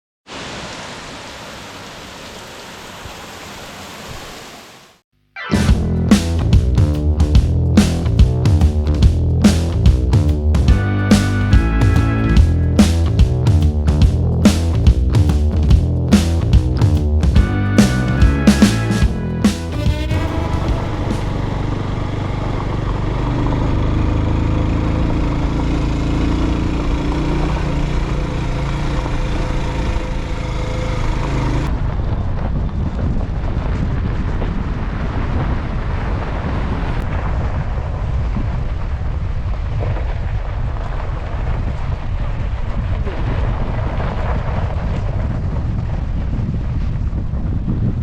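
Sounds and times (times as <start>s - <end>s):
vehicle engine running: 5.7s - 31.8s
wind rumble on microphone: 31.5s - 48.0s.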